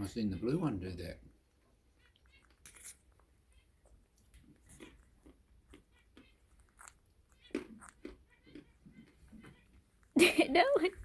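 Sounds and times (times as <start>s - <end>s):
parrots cracking nuts: 2.1s - 3.3s, 4.2s - 9.4s.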